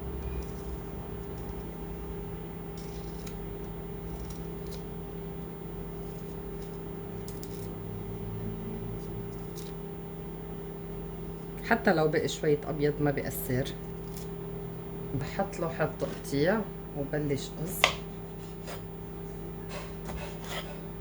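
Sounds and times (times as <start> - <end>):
knife scraping lemon peel: 0.0 - 7.8, 8.9 - 9.9, 13.6 - 14.4, 17.8 - 18.9, 19.7 - 21.0
steady low hum: 0.0 - 21.0.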